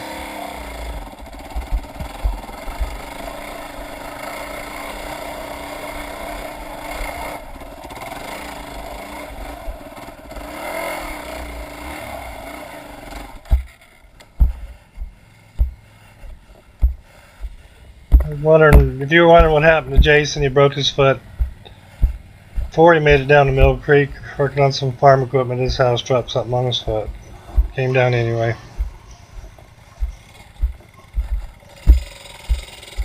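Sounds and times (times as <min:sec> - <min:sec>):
motorcycle engine running: 0:00.0 - 0:33.0
dull knocks: 0:01.5 - 0:03.0, 0:13.5 - 0:13.7, 0:14.4 - 0:24.2, 0:26.8 - 0:33.0.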